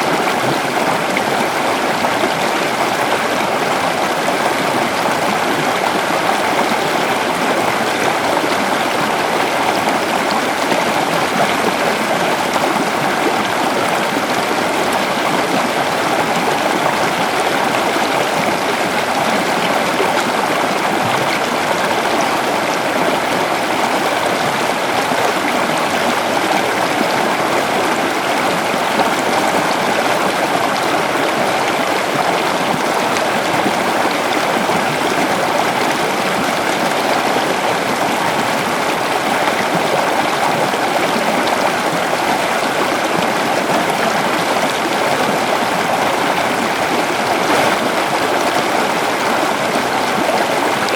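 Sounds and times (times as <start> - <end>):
river flowing over stones: 0.0 - 50.9.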